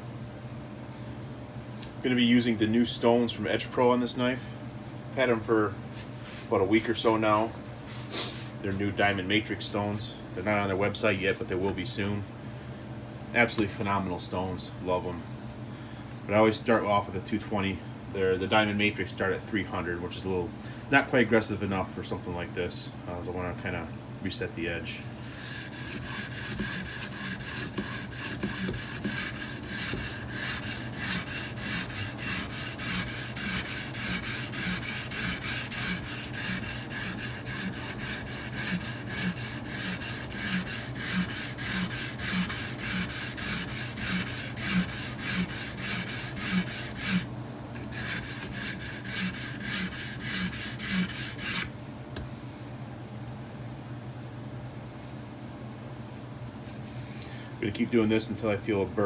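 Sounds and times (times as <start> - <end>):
sharpening stone scraping knife edge: 24.9 - 47.2, 47.8 - 51.7.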